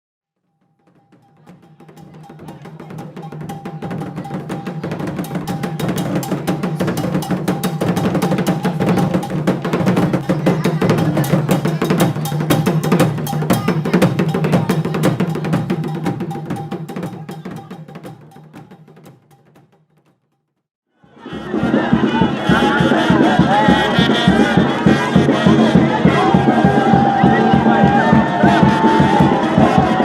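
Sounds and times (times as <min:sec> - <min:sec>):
wood block strikes: 0:00.6 - 0:20.2
fast dense drumming: 0:00.9 - 0:20.1, 0:21.9 - 0:30.0.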